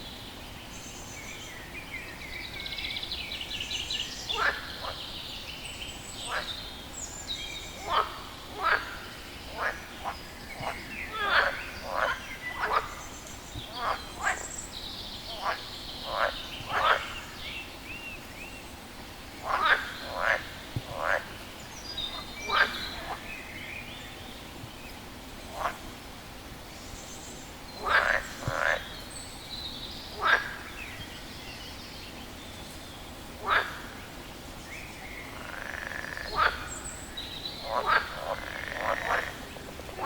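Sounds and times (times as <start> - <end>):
frog croaking: 7.8 - 13.0, 13.7 - 14.5, 15.3 - 17.2, 19.4 - 21.3, 22.1 - 23.2, 27.8 - 28.9, 30.2 - 30.7, 33.4 - 33.8, 35.3 - 36.8, 37.6 - 40.0.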